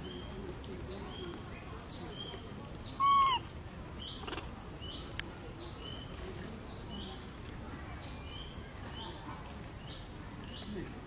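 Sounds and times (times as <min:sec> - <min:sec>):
birds chirping: 0:00.0 - 0:11.0
clear rising and falling bird call: 0:02.8 - 0:04.3.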